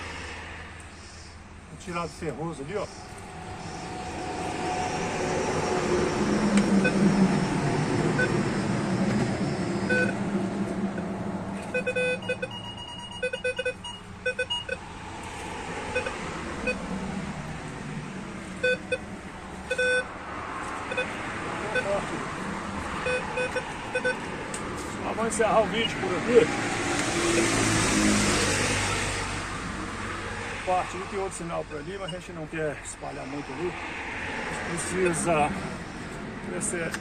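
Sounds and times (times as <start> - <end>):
rough rushing noise: 1.8 - 10.6
metal detector beeps: 8.2 - 10.2, 11.7 - 14.8, 15.9 - 16.8, 18.6 - 19.0, 19.7 - 20.1, 20.9 - 22.0, 23.0 - 24.2.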